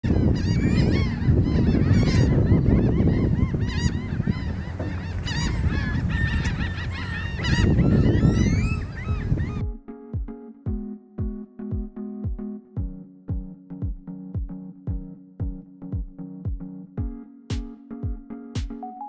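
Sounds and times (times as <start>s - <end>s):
gulls calling: 0.0s - 9.7s.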